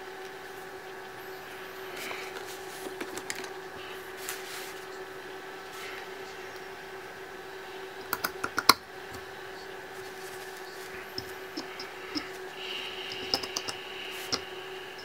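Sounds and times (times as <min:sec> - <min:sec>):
electrical hum: 0:00.0 - 0:15.0
soft handling noises: 0:01.9 - 0:04.9, 0:09.9 - 0:12.6.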